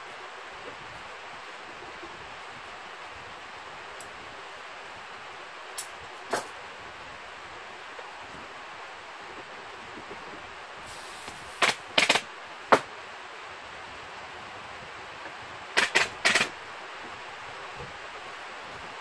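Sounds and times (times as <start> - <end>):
steady air hiss: 8.7 - 19.0
pneumatic staple gun firing: 10.9 - 12.2, 15.8 - 16.5.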